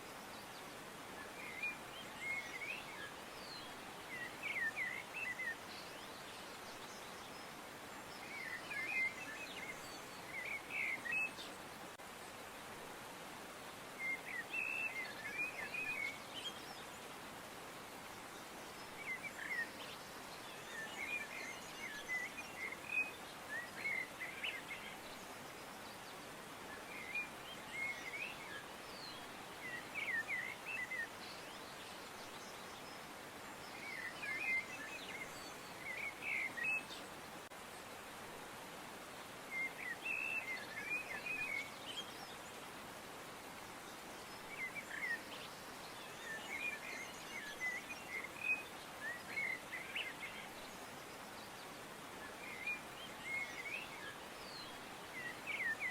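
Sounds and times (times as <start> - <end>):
soft outdoor hiss: 0.0 - 55.9
small birds chirping: 39.3 - 55.9.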